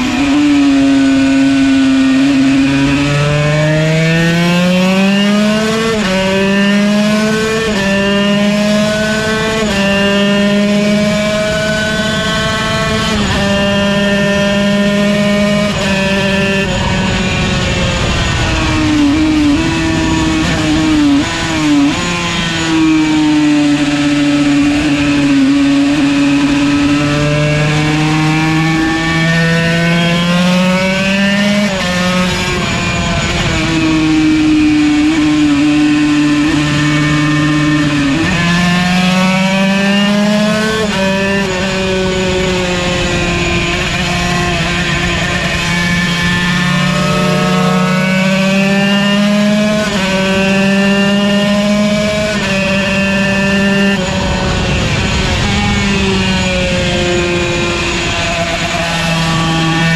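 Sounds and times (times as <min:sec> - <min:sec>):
two-stroke racing engine: 0:00.0 - 0:59.9.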